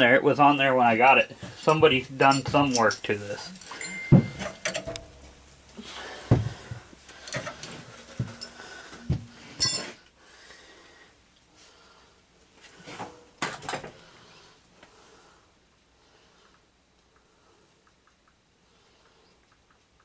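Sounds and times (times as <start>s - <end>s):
metal hand tools clinking: 2.2s - 5.4s, 7.2s - 8.7s, 9.5s - 10.0s.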